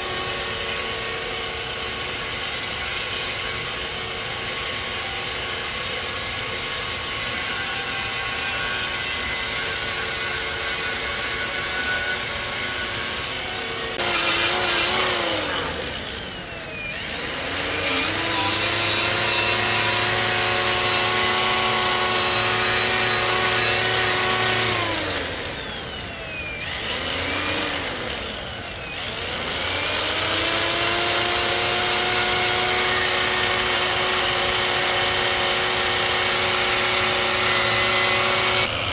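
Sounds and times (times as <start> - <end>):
power tool motor whine: 0.0 - 38.9
machine hum: 13.4 - 38.9.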